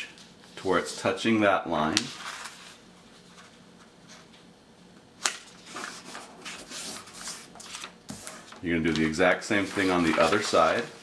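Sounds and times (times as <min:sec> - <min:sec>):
paper crackling: 0:01.8 - 0:04.3, 0:05.2 - 0:11.0
paper rustling and rubbing: 0:01.8 - 0:04.3, 0:05.2 - 0:11.0.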